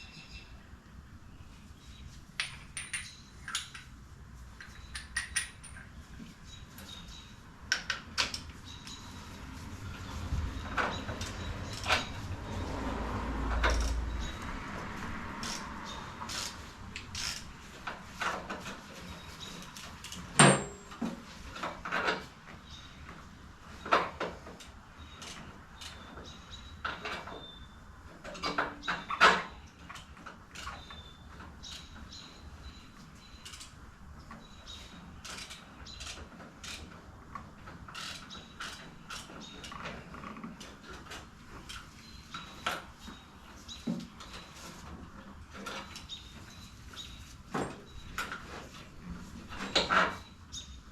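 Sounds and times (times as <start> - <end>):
hand tools clinking and knocking: 2.4 - 3.9, 4.6 - 6.0, 18.2 - 22.3
ringing metallic clank: 20.4 - 21.0.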